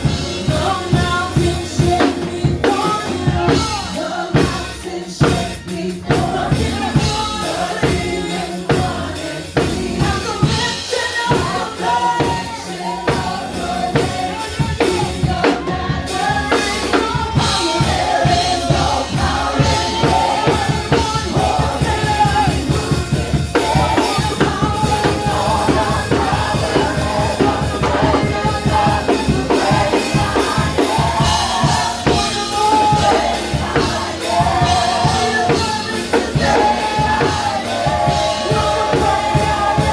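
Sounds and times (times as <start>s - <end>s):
drum kit beat: 0.0s - 39.9s
voices singing: 0.0s - 39.9s
worship band playing: 0.0s - 39.9s.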